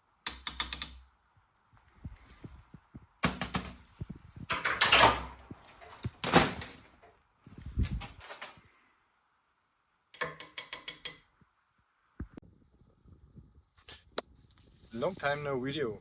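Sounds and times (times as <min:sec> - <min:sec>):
handling knocks and clicks: 0:00.3 - 0:01.0, 0:03.2 - 0:06.8, 0:10.2 - 0:11.3.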